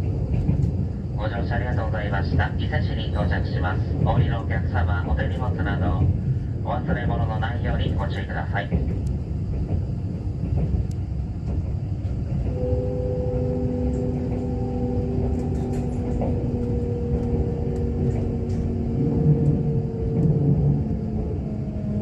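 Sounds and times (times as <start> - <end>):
train running rumble: 0.0 - 22.0.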